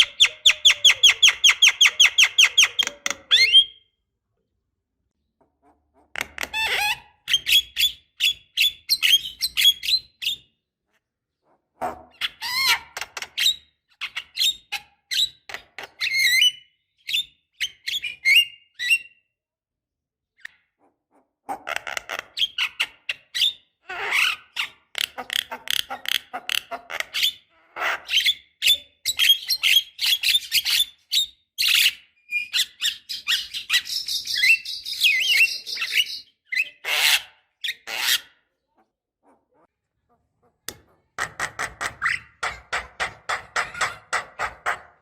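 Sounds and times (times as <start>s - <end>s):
bird chattering and whistling: 28.2s - 38.3s.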